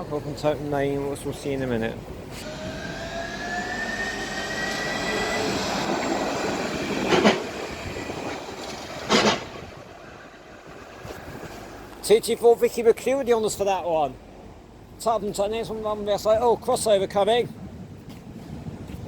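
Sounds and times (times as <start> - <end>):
rail vehicle running on track: 0.0 - 12.5
whine rising in pitch: 2.4 - 8.9
wheels clacking over rail joints: 2.4 - 12.1.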